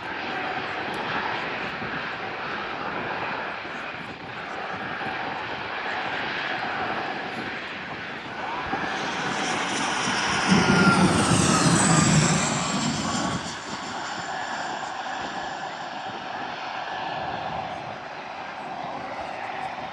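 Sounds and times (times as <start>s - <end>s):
jet airliner passing: 4.4s - 17.0s.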